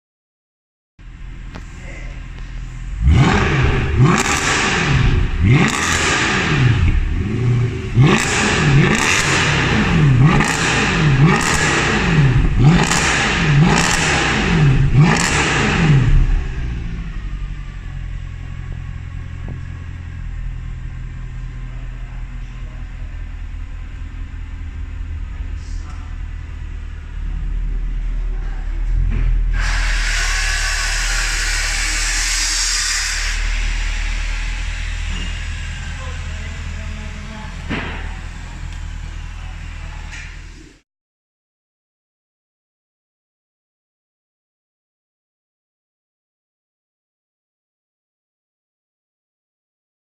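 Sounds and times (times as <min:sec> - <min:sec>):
car engine revving and idling: 0:01.0 - 0:40.8.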